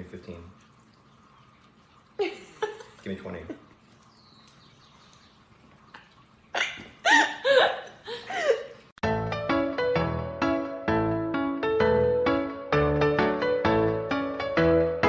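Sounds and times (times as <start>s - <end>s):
piano background music: 9.0s - 15.0s.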